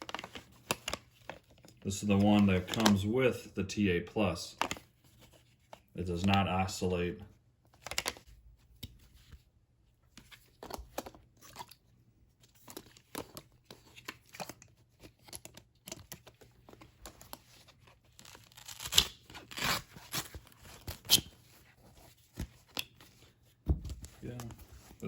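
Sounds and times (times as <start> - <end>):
fabric rustling and ripping: 18.2 - 21.3.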